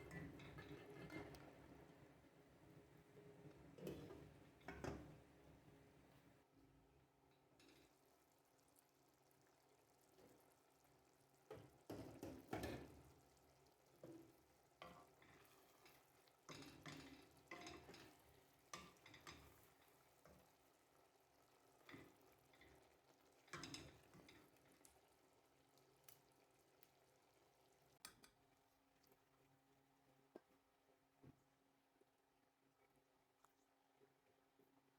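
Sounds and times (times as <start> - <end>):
utensil stirring in cooking pot: 0.0 - 6.1, 10.0 - 29.4.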